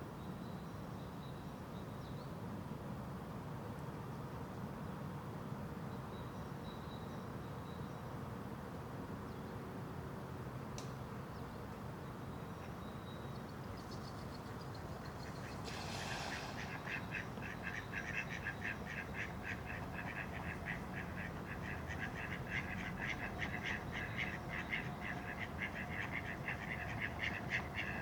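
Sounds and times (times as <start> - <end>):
brief rush of noise: 15.4 - 17.2
rapid quack-like animal calls: 15.6 - 28.0.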